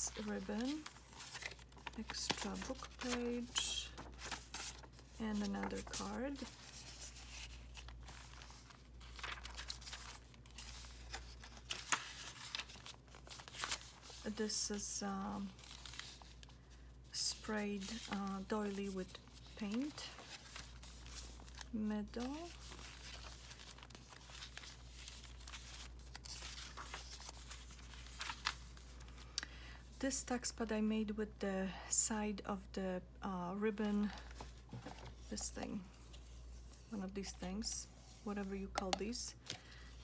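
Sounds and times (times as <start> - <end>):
pages turning: 0.0 - 14.3, 15.4 - 16.5, 17.8 - 29.3, 34.0 - 37.4
paper rustling and crinkling: 0.0 - 29.3, 34.0 - 40.0.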